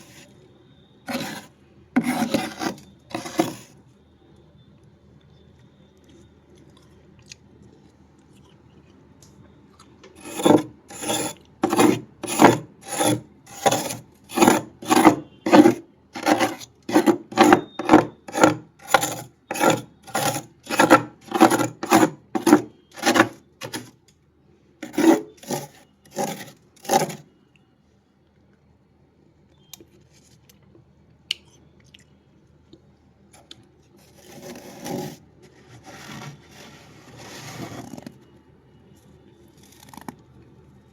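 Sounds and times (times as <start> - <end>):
freezer frost being scraped: 0.0 - 0.3, 1.1 - 3.8, 10.2 - 23.9, 24.8 - 27.3, 34.0 - 38.2.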